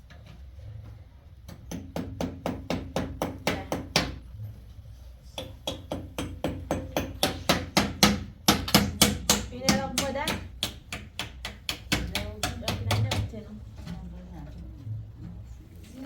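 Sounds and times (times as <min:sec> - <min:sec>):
rapid sharp knocks with ring: 0:05.4 - 0:13.3.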